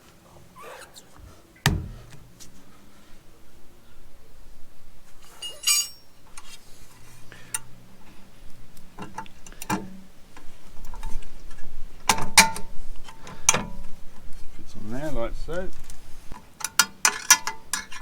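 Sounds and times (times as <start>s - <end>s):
tools clinking on steel: 5.3s - 6.1s.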